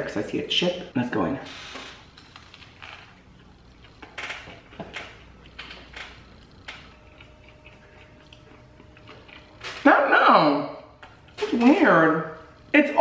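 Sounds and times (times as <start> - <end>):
wet chewing and smacking: 2.0 - 9.8, 10.9 - 11.4.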